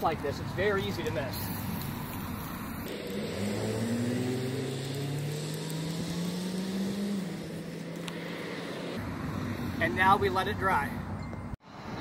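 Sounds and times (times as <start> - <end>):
car engine accelerating: 2.8 - 9.0.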